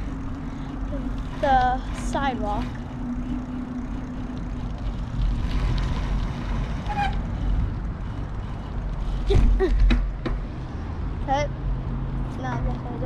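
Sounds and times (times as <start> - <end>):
bicycle tyres on path: 0.0 - 9.4
brief squeak: 6.8 - 7.3.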